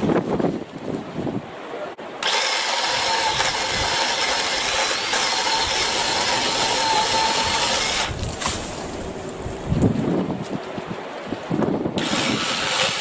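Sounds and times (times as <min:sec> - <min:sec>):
battery-powered saw motor whine: 0:02.2 - 0:08.1.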